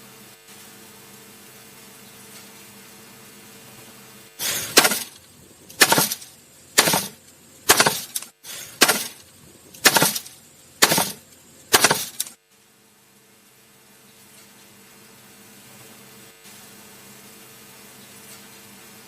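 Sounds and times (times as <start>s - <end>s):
sharp crashing impacts: 4.4s - 12.4s.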